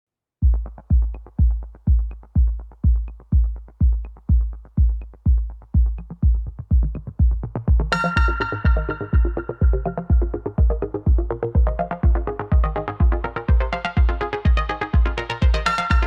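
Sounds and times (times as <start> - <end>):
drum machine kick: 0.4 - 16.0
synth layer: 7.8 - 16.0.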